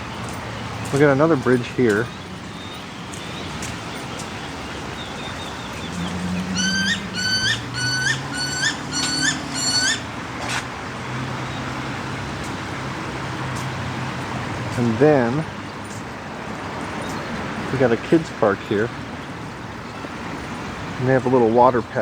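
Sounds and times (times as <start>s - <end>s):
bird calling short clear notes: 4.4s - 10.6s.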